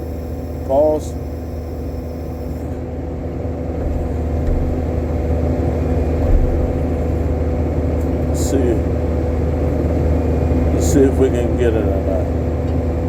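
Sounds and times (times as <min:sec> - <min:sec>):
backhoe diesel engine running: 0:00.0 - 0:10.6.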